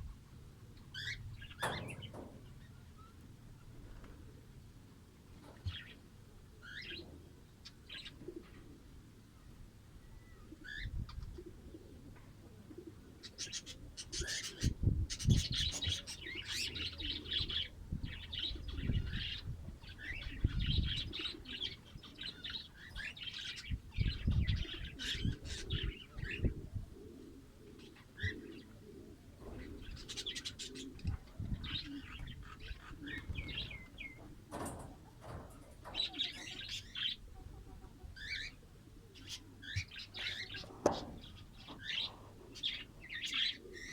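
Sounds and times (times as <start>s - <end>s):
lovebirds twittering: 0.7s - 3.8s, 27.6s - 43.9s.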